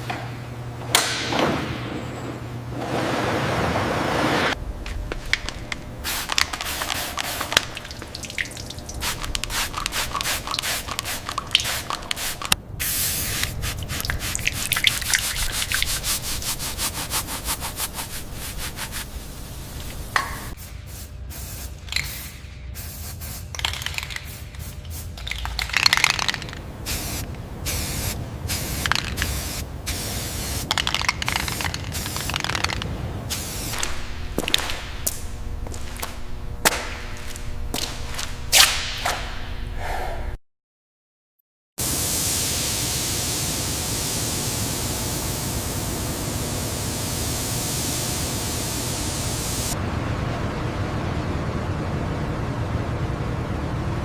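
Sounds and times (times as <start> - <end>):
hissing spray bursts: 6.0 - 23.5, 25.8 - 34.1.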